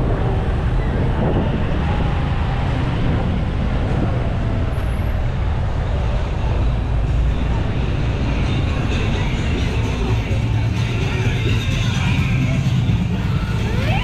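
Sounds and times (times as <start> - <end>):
road noise rumble: 0.0 - 14.0
traffic: 0.0 - 14.0
motorbike engine: 13.1 - 14.0.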